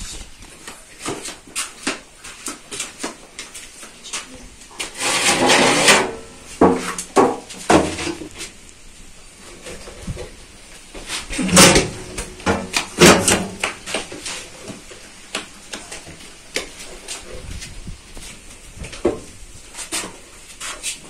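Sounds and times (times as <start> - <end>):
scraping and handling: 4.8 - 8.6
metal baking tray clattering: 5.0 - 6.3.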